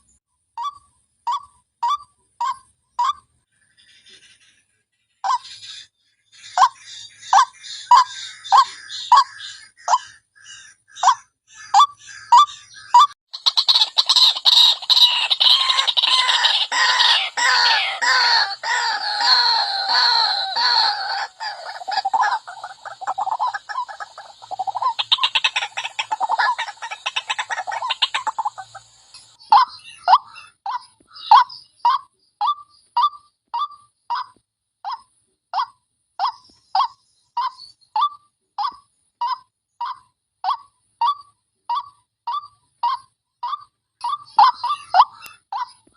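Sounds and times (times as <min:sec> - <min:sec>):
waterhen calling harshly: 0:11.0 - 0:28.8.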